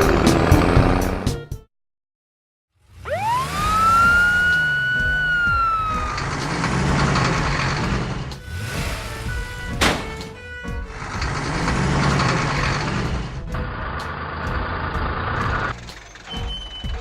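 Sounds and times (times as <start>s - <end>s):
low rumble: 2.9s - 15.7s
siren wail: 3.0s - 7.2s.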